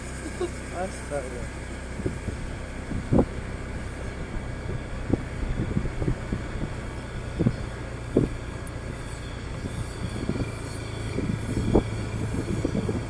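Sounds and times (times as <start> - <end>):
motorcycle engine rumble: 0.0 - 13.0
wind on microphone: 1.8 - 13.0.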